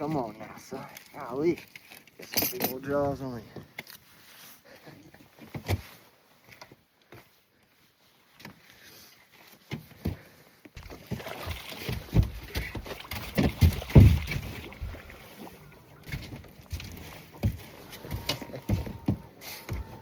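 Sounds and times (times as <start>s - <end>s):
fish splashing and thumping: 10.0s - 20.0s
knocks in aluminum boat: 12.0s - 15.0s.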